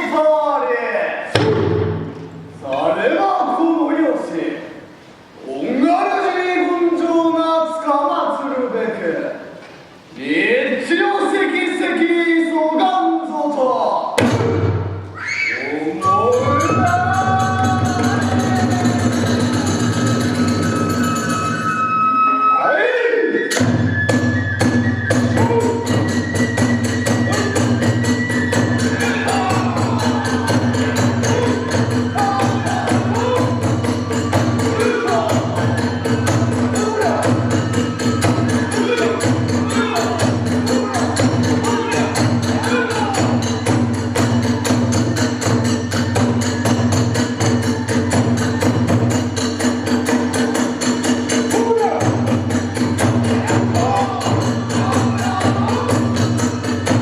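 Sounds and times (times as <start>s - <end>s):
high flute melody: 15.2s - 43.6s
fast even percussion strokes: 15.9s - 22.4s, 23.4s - 57.0s
drum beating fast rhythm: 16.0s - 21.7s, 23.5s - 57.0s.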